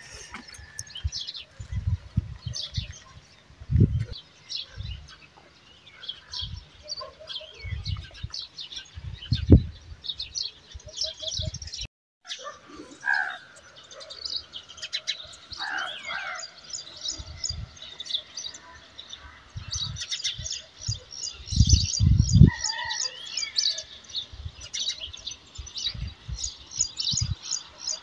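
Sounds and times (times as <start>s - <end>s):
small birds chirping: 0.0s - 28.0s
microphone rumbles: 0.8s - 3.0s, 3.6s - 4.2s, 7.6s - 10.0s, 20.8s - 22.6s.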